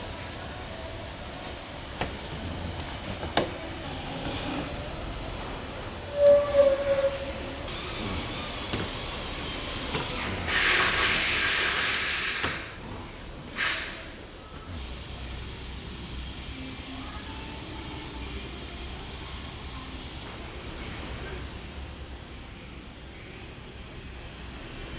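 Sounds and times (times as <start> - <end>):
pressurised hiss: 13.6 - 24.9.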